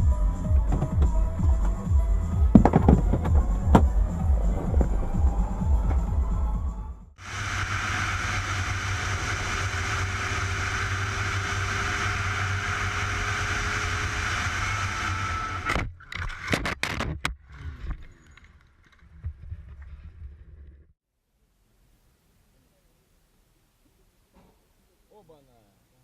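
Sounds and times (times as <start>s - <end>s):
car road and engine noise: 0.0s - 17.8s
sharp knocks: 2.5s - 4.0s.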